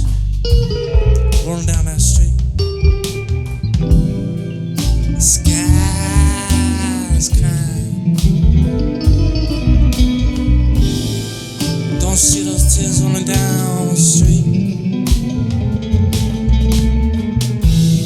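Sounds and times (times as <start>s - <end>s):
blues band playing: 0.0s - 18.0s
person singing: 1.3s - 2.4s, 5.2s - 8.3s, 11.7s - 14.8s.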